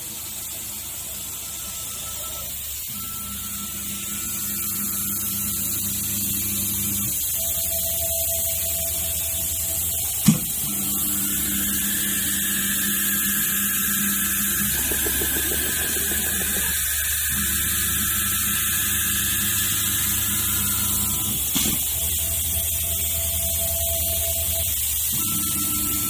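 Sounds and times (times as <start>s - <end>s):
router spindle whining: 14.3s - 18.4s.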